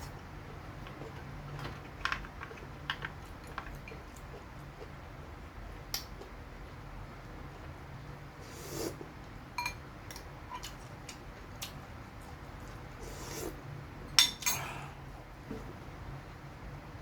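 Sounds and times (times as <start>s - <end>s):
cutlery clinking against dishes: 9.6s - 9.8s, 14.1s - 14.7s.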